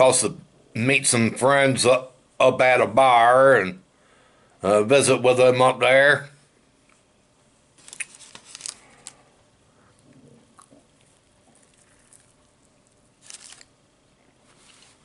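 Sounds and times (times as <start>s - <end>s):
man chewing a sandwich: 7.8s - 15.0s.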